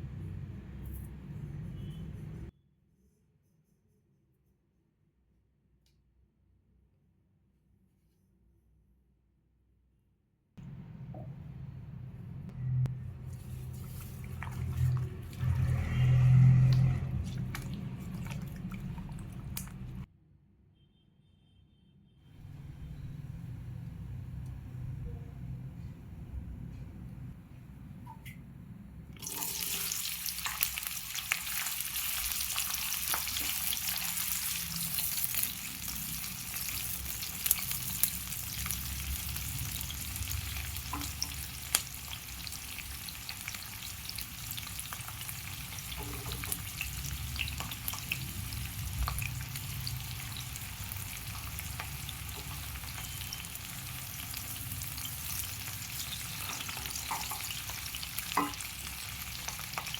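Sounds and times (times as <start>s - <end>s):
food sizzling in hot oil: 29.2s - 59.9s
spoon tapping and scraping pan: 56.3s - 58.8s.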